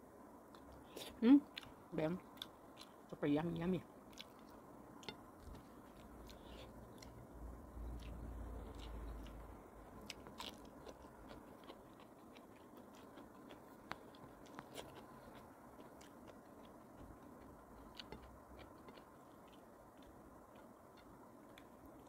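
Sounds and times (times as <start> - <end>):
person chewing with mouth clicks: 4.1 - 7.2, 7.8 - 22.0.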